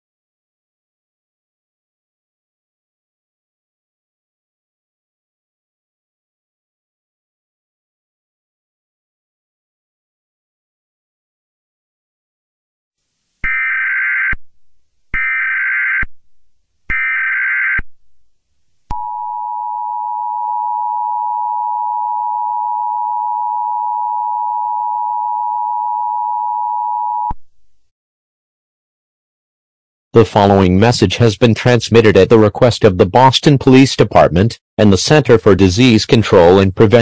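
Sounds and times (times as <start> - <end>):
steady two-tone attention signal: 18.9 - 27.4.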